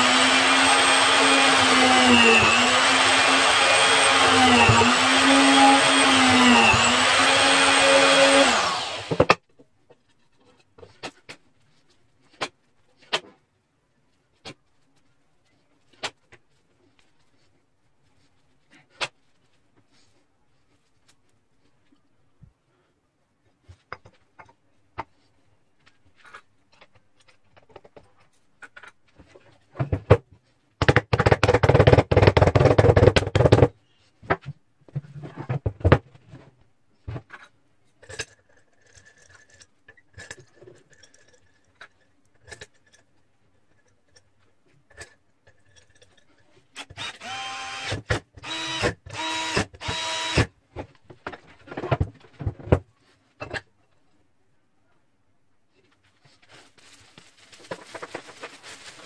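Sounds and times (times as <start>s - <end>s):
power tool running: 0.0s - 9.3s, 47.0s - 50.5s.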